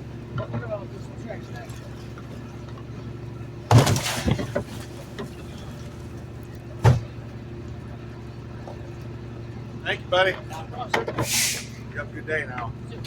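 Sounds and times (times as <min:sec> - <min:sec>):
garbage truck engine idling: 0:00.0 - 0:13.0
trash crashing into hopper: 0:03.7 - 0:04.9.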